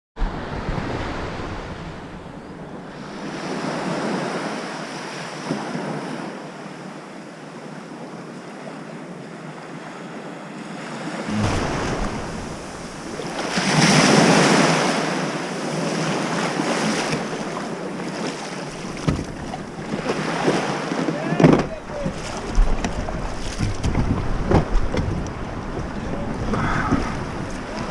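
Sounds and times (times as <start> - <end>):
sea waves washing: 9.7 - 27.9
wind on microphone: 11.3 - 18.0, 18.6 - 27.9.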